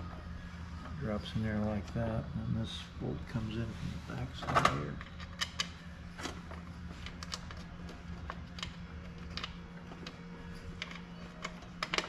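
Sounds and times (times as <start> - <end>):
steady low hum: 0.0 - 12.0
small metal parts clicking: 10.8 - 12.0.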